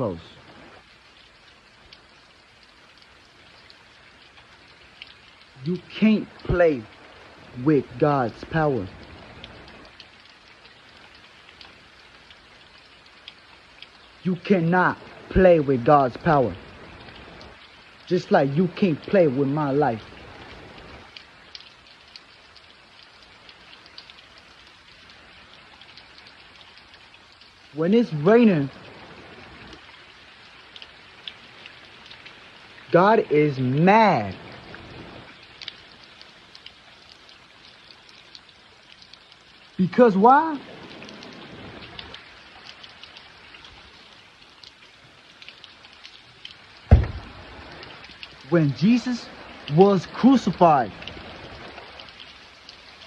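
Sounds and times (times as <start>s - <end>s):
rain falling: 0.0s - 53.0s
sharp drip ticks: 0.4s - 53.0s
drops ticking on a surface: 21.1s - 25.2s, 41.9s - 48.4s.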